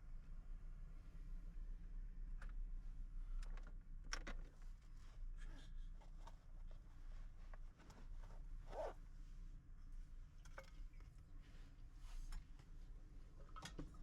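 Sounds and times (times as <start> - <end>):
rustles and clicks of handling: 3.4 - 8.9, 10.2 - 14.0.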